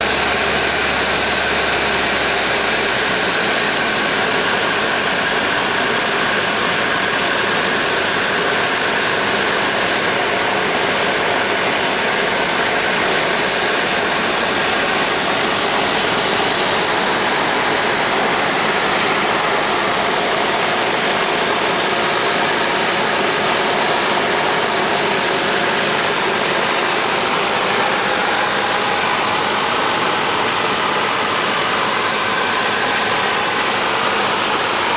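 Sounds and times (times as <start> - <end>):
light aircraft engine droning: 0.0 - 34.9.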